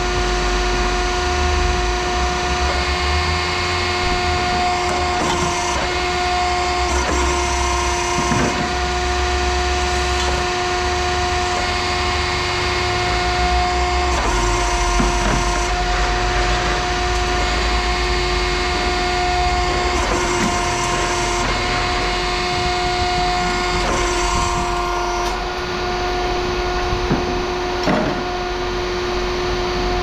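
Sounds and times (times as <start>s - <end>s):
machine humming and whining: 0.0s - 30.0s.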